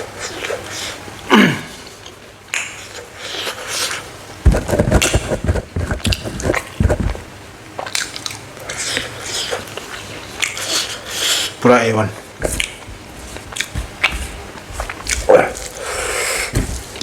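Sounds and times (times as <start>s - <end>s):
chewing and biting: 7.8s - 11.4s, 12.4s - 17.0s.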